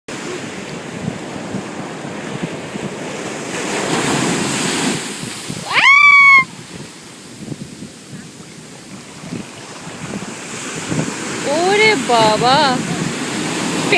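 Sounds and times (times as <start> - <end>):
ocean surf washing in: 0.1 - 13.9
person shrieking: 5.6 - 6.5.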